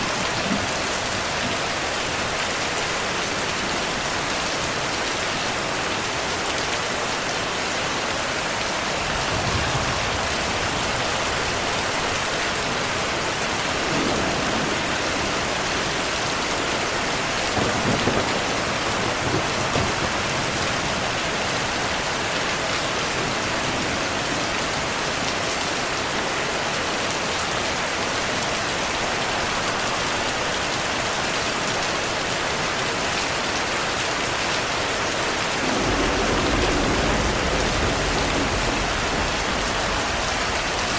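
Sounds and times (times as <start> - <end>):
heavy rain: 0.0 - 40.9
distant thunder rumbling: 8.9 - 22.0, 35.5 - 40.9.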